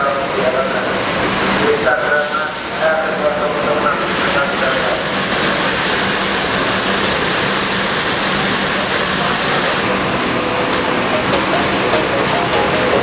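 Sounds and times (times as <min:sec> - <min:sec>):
road and air-conditioning noise: 0:00.0 - 0:13.0.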